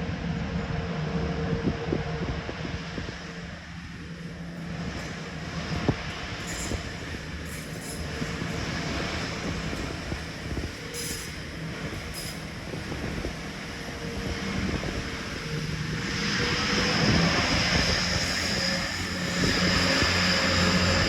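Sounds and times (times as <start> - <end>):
train high whine: 0.0 - 21.0
train humming: 0.0 - 21.0.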